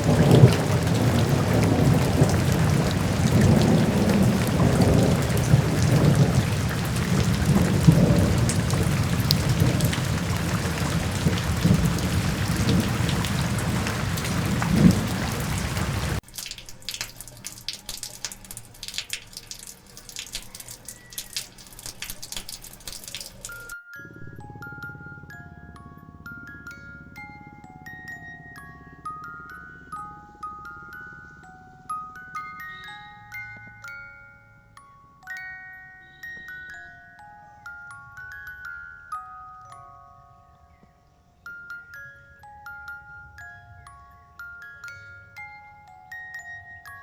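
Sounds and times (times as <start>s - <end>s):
rumbling thunder: 0.0s - 16.2s
heavy rain: 0.0s - 23.7s
scattered raindrops dripping: 0.0s - 23.8s.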